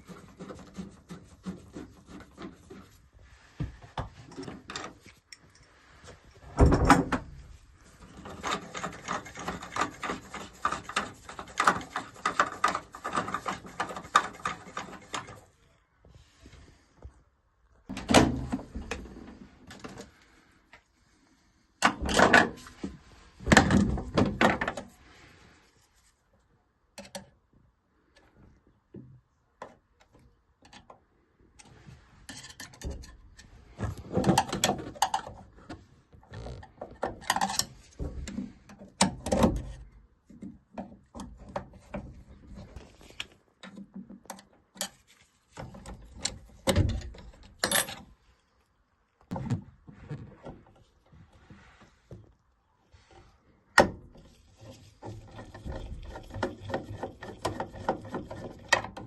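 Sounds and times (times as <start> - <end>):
tools knocking and scraping on metal: 55.0 - 59.0.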